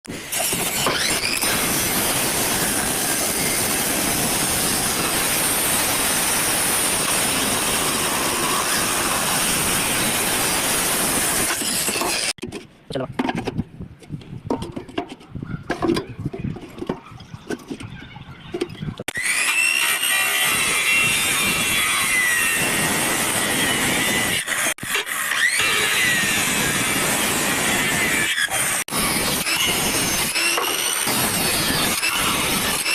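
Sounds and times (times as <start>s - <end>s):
angle grinder grinding steel: 0.1s - 12.4s, 19.0s - 32.9s.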